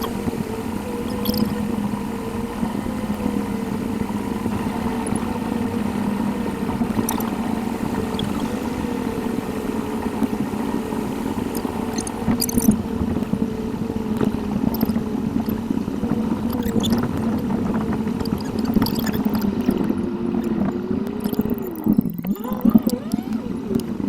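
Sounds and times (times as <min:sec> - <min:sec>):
sped-up car driving drone: 0:00.0 - 0:24.0
light ticks: 0:01.0 - 0:01.6, 0:04.4 - 0:05.9, 0:06.6 - 0:08.7, 0:14.1 - 0:15.6, 0:16.4 - 0:24.0.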